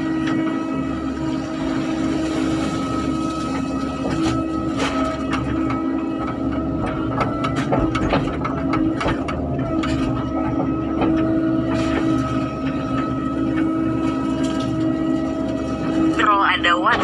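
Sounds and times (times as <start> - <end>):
excavator engine running: 0.0 - 17.0
metallic clanks and knocks: 3.4 - 16.2.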